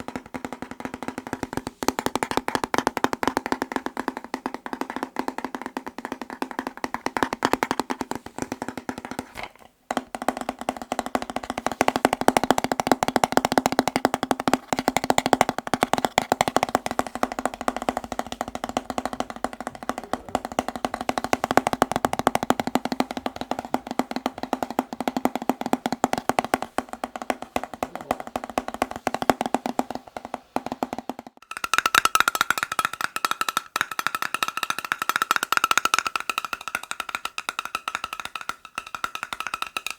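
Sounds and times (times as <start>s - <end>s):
fast tapping on hollow object: 0.0s - 39.9s.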